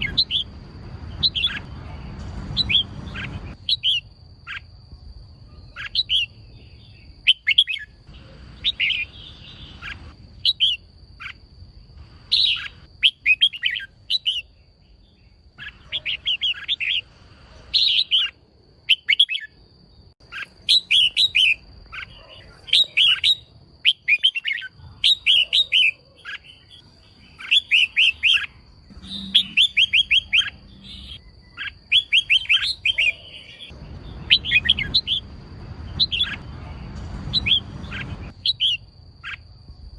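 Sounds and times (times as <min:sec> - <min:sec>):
faint high whine: 0:00.0 - 0:18.7
bird chirping: 0:00.0 - 0:39.9.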